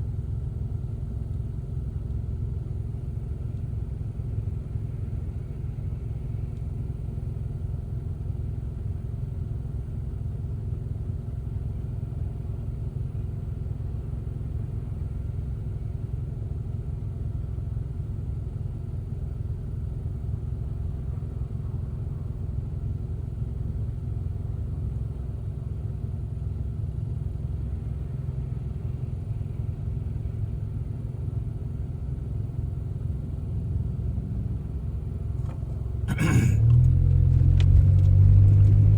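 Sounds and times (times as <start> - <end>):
car driving rumble: 12.2 - 38.9.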